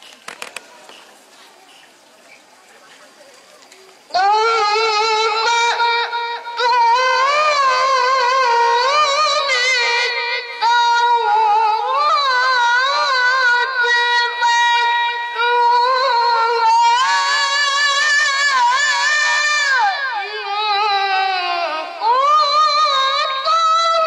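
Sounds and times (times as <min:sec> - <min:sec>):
child reciting melodically: 0:04.0 - 0:24.0.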